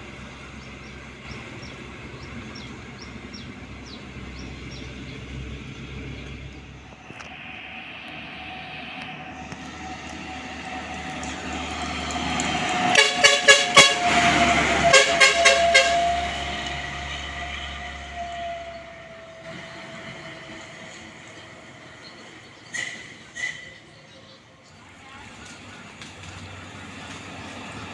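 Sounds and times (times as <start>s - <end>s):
heavy vehicle passing: 0.0s - 23.4s
short horn toots: 12.9s - 16.5s.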